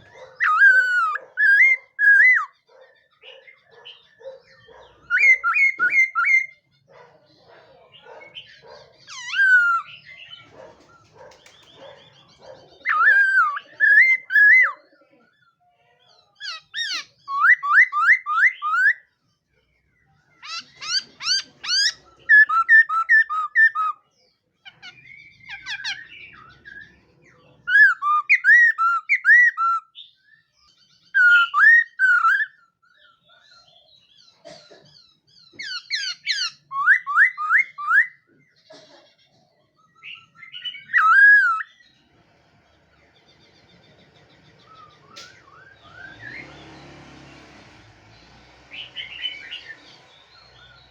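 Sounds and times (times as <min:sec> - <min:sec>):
bird singing whistled phrases: 0:00.4 - 0:02.6, 0:05.1 - 0:06.6, 0:12.9 - 0:14.8, 0:16.6 - 0:19.0, 0:20.5 - 0:24.0, 0:27.7 - 0:30.2, 0:31.1 - 0:32.6, 0:35.8 - 0:38.2, 0:40.0 - 0:41.7.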